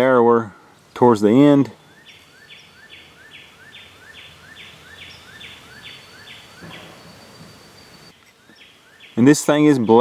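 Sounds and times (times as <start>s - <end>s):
faint high whine: 0.8s - 10.0s
animal chirping calls: 1.8s - 9.3s.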